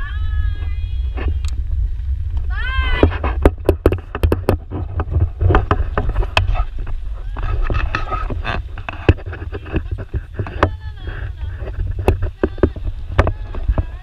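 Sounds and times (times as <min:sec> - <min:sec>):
wind buffeting microphone: 0:00.0 - 0:14.0
sharp clicks and knocks: 0:03.0 - 0:14.0.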